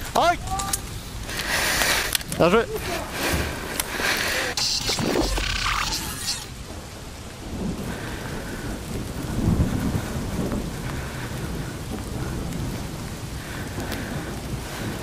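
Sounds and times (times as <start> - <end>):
rain hissing: 0.0 - 15.0
low rumbling noise: 3.1 - 14.9.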